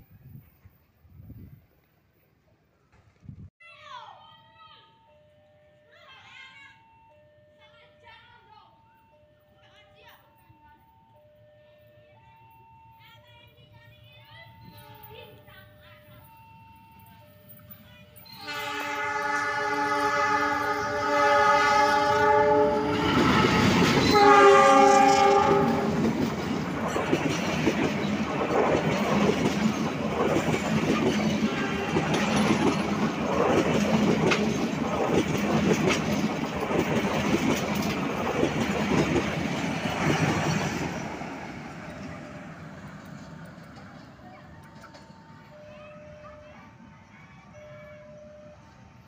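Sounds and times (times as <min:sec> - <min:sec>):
locomotive air horn: 0:18.4 - 0:26.1
wheels clattering over rail joints: 0:21.8 - 0:46.2.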